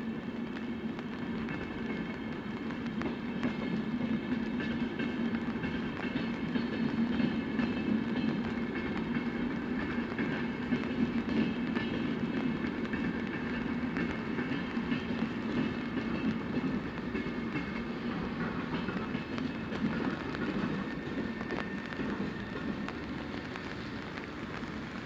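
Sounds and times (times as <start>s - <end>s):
train running on tracks: 0.0s - 25.0s.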